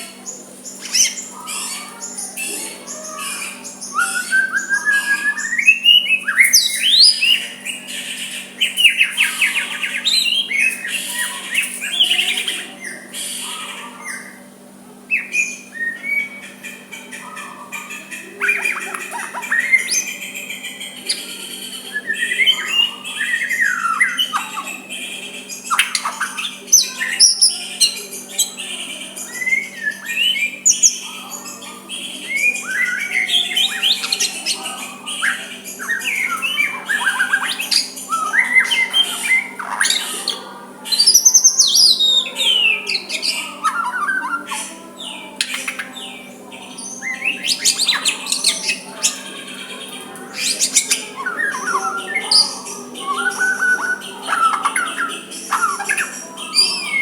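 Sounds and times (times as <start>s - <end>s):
bird singing whistled song: 0.0s - 13.1s, 15.1s - 16.6s, 21.9s - 28.6s, 29.2s - 44.6s, 50.4s - 57.0s.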